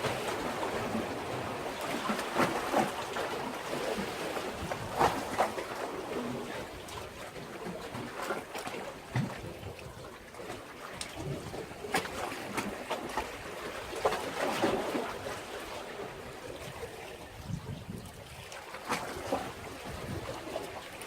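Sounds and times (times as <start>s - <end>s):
small water splashes: 0.0s - 21.0s
waves lapping against breakwater: 0.0s - 21.0s.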